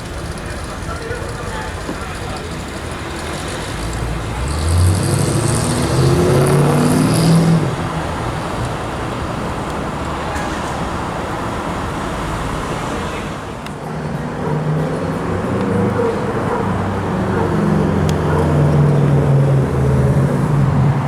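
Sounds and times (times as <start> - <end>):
road traffic noise: 0.0 - 21.0
car accelerating past: 3.0 - 13.6, 14.4 - 21.0.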